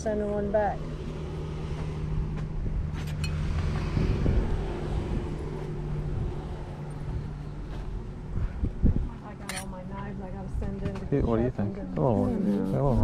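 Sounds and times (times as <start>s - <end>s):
vehicle engine running: 0.0s - 13.0s
metal utensils clinking: 9.4s - 9.7s.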